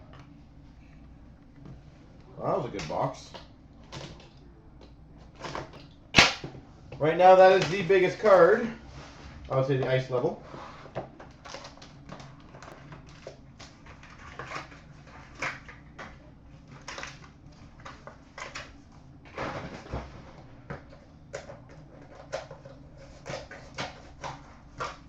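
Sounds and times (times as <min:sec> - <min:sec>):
packaging rustling and crinkling: 0:11.1 - 0:16.0.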